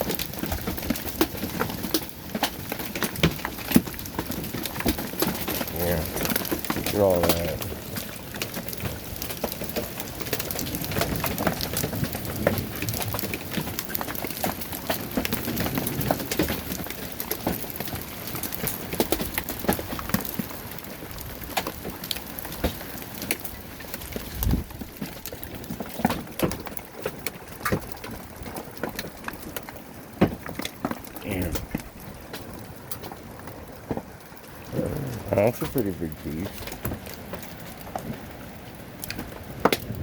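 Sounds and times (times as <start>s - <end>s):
hailstones pelting down: 0.0s - 40.0s
rain hiss: 5.6s - 13.9s, 31.1s - 40.0s.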